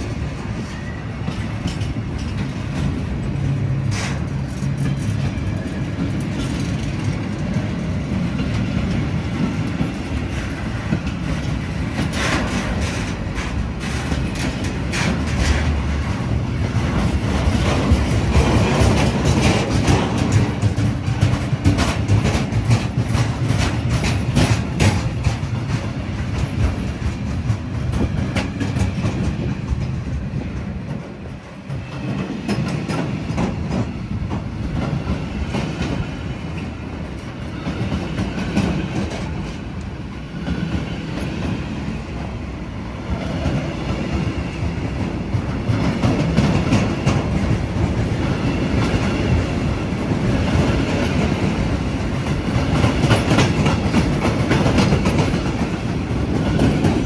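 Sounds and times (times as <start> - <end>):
wheels clacking over rail joints: 0.0 - 42.3, 43.0 - 57.0
train rumbling past: 0.0 - 57.0.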